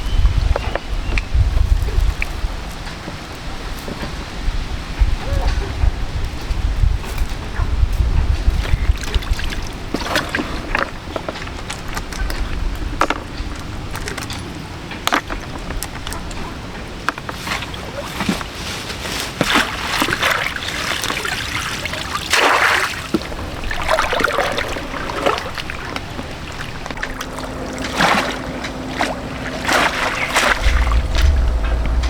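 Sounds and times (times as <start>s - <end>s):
water splashing in surges: 16.9s - 32.0s
low rumble: 26.8s - 32.0s.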